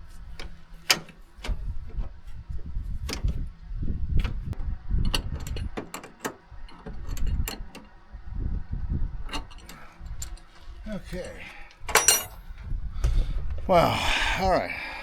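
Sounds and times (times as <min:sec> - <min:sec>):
metallic clanks and knocks: 0:11.9 - 0:12.4.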